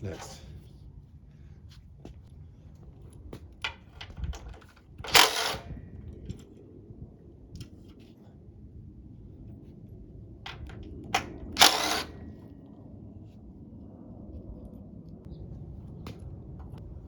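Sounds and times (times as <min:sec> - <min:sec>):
low steady hum: 0:00.0 - 0:17.0
rattling scrape: 0:04.0 - 0:05.8, 0:10.5 - 0:12.2
sharp clicks: 0:10.5 - 0:12.3.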